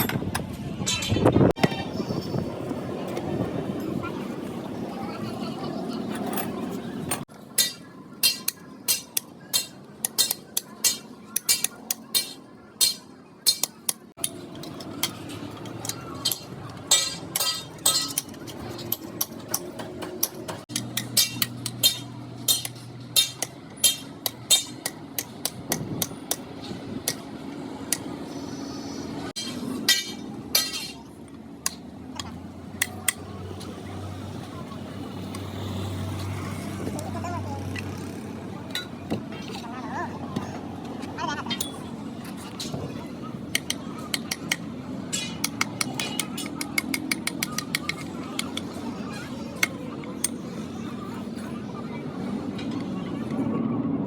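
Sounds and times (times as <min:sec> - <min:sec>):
hammer striking metal: 0:07.6 - 0:15.2, 0:15.8 - 0:27.2, 0:29.4 - 0:31.8.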